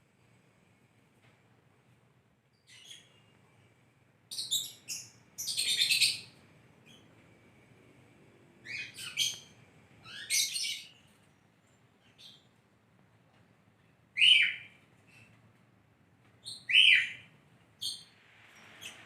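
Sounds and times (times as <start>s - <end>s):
lovebird chirping: 2.6s - 3.3s, 4.3s - 7.0s, 8.6s - 12.5s, 14.2s - 15.3s, 16.4s - 19.0s.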